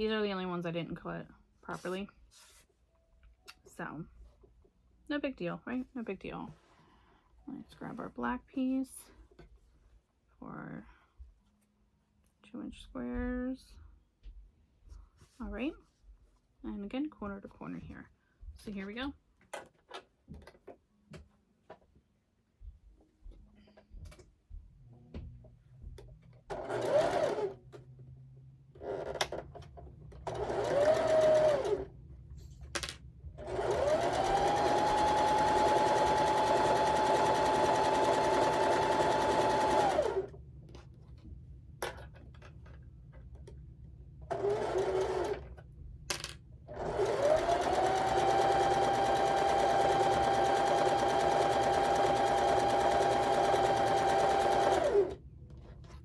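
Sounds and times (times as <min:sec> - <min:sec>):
electric sewing machine stitching: 0:26.5 - 0:27.6, 0:28.8 - 0:29.5, 0:30.2 - 0:31.9, 0:33.4 - 0:40.3, 0:44.3 - 0:45.5, 0:46.7 - 0:55.2.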